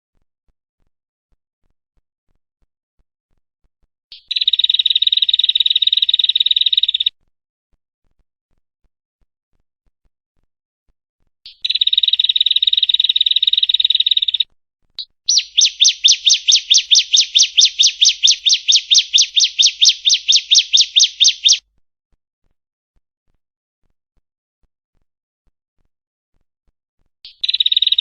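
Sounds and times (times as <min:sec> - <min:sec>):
bird buzzy trill: 0:15.3 - 0:21.6
bird sharp repeated notes: 0:15.3 - 0:21.6.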